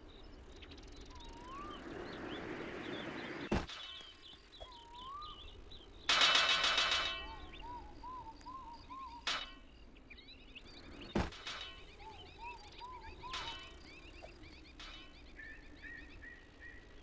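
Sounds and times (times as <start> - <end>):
birds singing: 0.0 - 17.0
sharp knocks: 3.5 - 4.2, 6.1 - 9.7, 11.1 - 15.4
anvil struck ringing: 6.1 - 9.8, 11.2 - 15.6.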